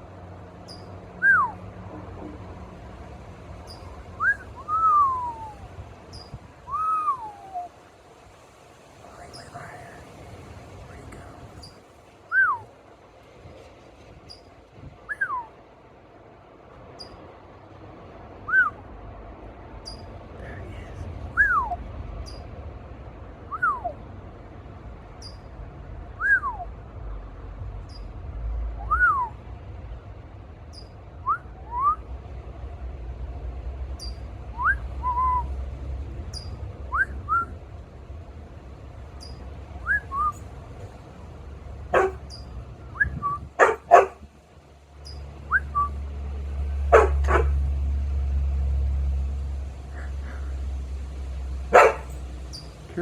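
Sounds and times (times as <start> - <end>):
small bird chirping: 0.6 - 1.0, 3.6 - 3.9, 6.1 - 6.4, 9.2 - 10.0, 19.8 - 20.1, 22.2 - 22.5, 25.2 - 25.5, 27.8 - 28.2, 30.7 - 31.0, 34.0 - 34.3, 36.3 - 36.6, 39.2 - 40.5, 42.0 - 43.5, 45.0 - 46.0, 51.8 - 52.9.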